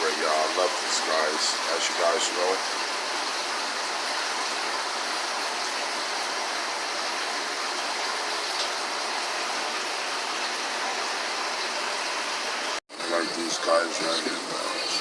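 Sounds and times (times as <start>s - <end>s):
rushing water flow hiss: 0.0s - 15.0s
water splashing into tanks: 0.0s - 15.0s.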